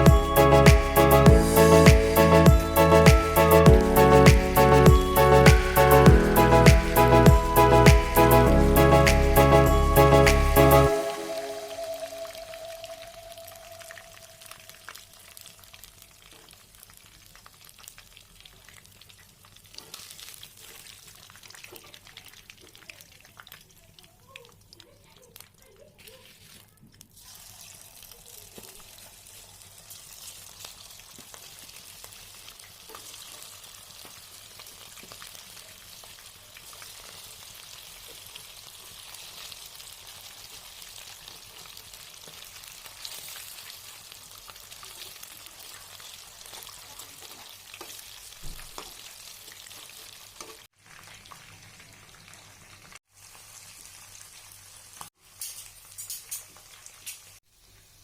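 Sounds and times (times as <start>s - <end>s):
chicken deep-frying in oil: 11.0s - 58.0s.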